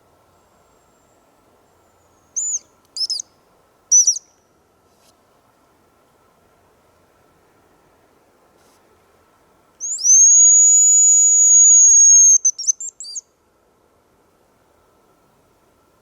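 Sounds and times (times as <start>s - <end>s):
bird decoy whistle: 2.4s - 3.3s, 3.9s - 4.4s, 9.8s - 13.3s.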